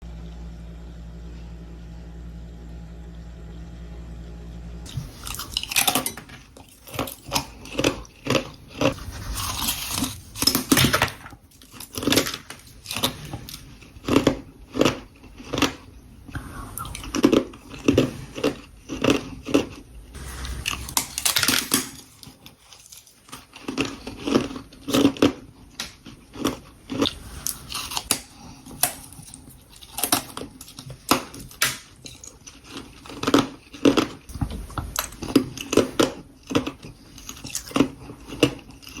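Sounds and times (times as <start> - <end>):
crunching frost being chewed: 4.8 - 39.0.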